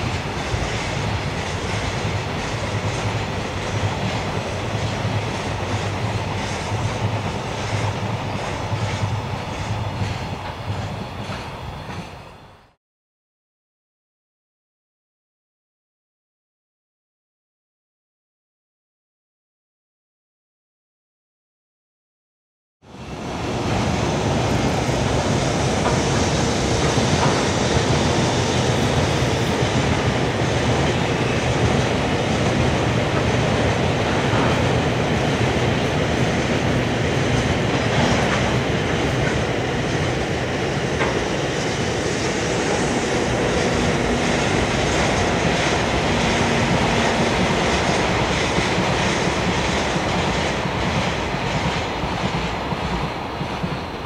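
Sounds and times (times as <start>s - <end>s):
clickety-clack over rail joints: 0.0s - 12.2s, 23.6s - 54.0s
train wheels rumbling on rail: 0.0s - 12.8s, 22.8s - 54.0s.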